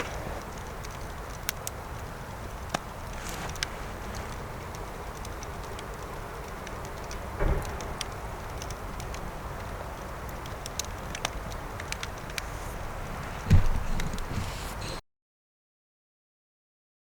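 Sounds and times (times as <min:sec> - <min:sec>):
campfire crackling and popping: 0:00.0 - 0:15.0
dull low thump: 0:13.4 - 0:14.5.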